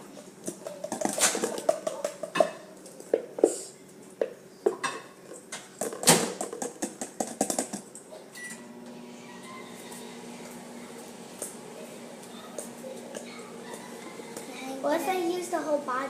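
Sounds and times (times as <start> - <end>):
kitchenware clinking and knocking: 0.5 - 3.3, 4.2 - 7.9.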